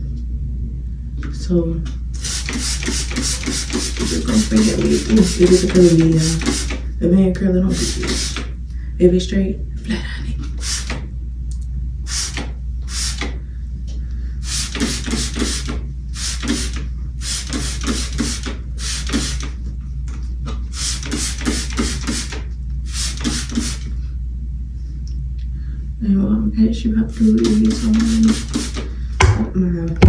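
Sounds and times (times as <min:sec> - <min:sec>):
spray bottle spritzing: 0:02.2 - 0:06.8, 0:07.7 - 0:08.5, 0:10.6 - 0:11.0, 0:12.1 - 0:13.3, 0:14.4 - 0:19.6, 0:20.7 - 0:23.9, 0:27.4 - 0:28.9.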